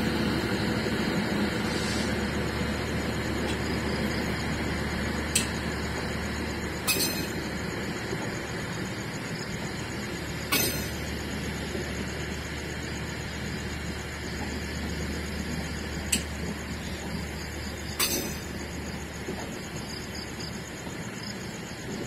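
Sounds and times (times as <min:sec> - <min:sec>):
railway cars rumbling: 0:00.0 - 0:22.0
sharp metallic clacks: 0:06.8 - 0:07.4, 0:10.5 - 0:11.0, 0:18.0 - 0:18.6.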